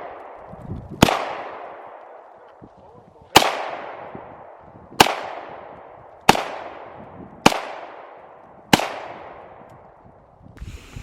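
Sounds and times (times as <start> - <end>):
pistol shots with echo: 0.0 - 2.3, 3.3 - 9.6.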